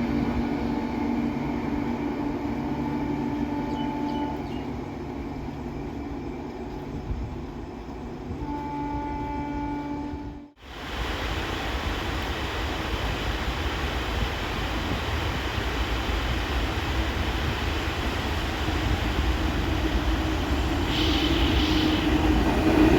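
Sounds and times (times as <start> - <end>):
passing train rumble: 0.0 - 22.9
locomotive horn blasts: 2.7 - 4.5, 8.4 - 10.6.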